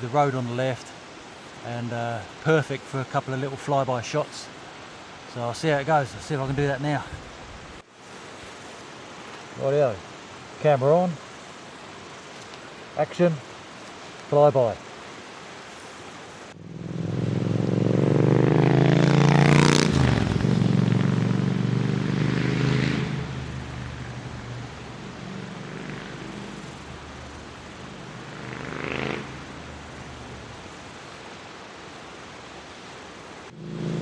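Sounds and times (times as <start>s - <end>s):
motorcycle passing at speed: 16.5s - 30.3s, 33.5s - 34.0s.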